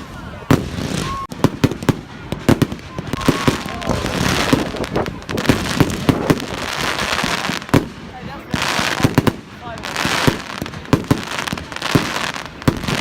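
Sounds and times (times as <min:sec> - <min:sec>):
fireworks banging: 0:00.0 - 0:13.0
fireworks crackling: 0:00.0 - 0:13.0
faint firework whistle: 0:00.7 - 0:04.8.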